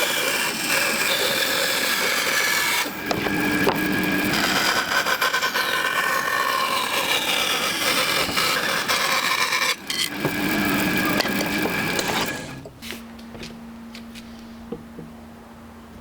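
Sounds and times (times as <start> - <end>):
power tool cutting wood: 0.0 - 12.7.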